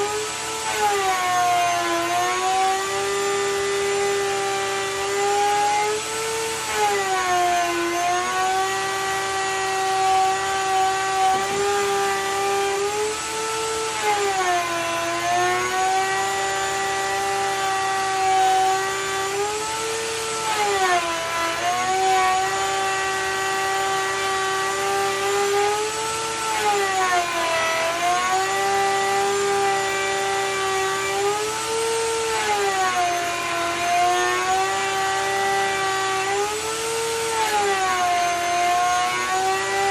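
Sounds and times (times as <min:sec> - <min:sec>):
electric power tool motor: 0:00.0 - 0:39.9.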